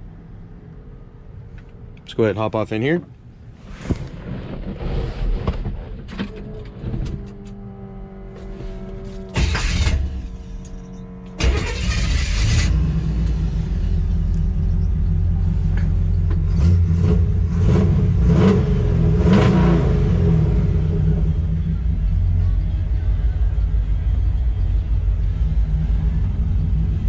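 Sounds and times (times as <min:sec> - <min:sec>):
engine throttle blips: 0:03.3 - 0:27.0
truck engine starting and idling: 0:05.5 - 0:27.0.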